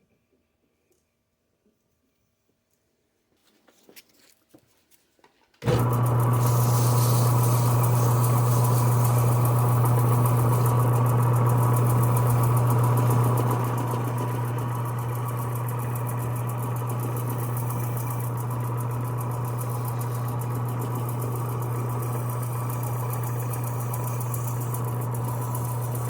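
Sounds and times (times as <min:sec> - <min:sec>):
electric sander humming: 0:05.6 - 0:26.0.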